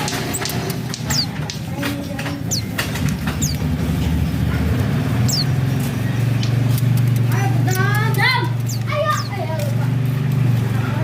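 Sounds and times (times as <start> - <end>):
birds chirping: 0.0 - 11.0
low motor hum: 0.0 - 11.0
small clicks and rustles: 5.8 - 10.7.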